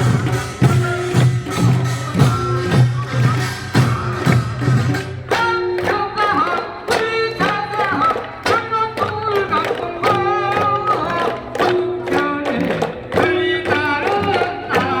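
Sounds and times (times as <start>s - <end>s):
steady drum strokes: 0.0s - 7.0s
folk song sung with vibrato: 0.0s - 15.0s.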